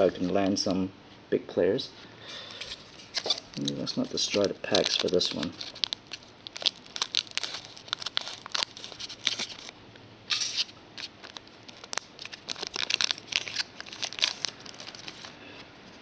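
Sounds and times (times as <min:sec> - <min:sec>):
foil wrapper crinkling: 0:02.5 - 0:15.4
wrapper ripping: 0:02.6 - 0:15.4.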